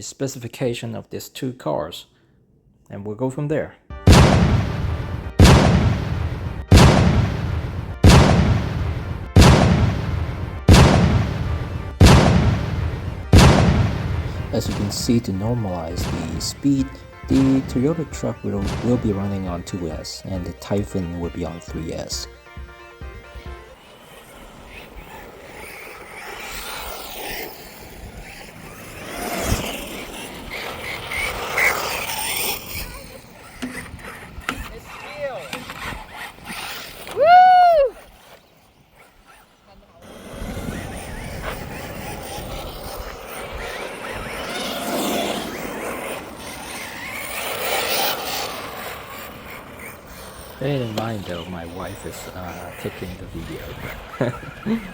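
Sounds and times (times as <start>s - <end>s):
radio-controlled car motors whining: 14.2s - 54.9s.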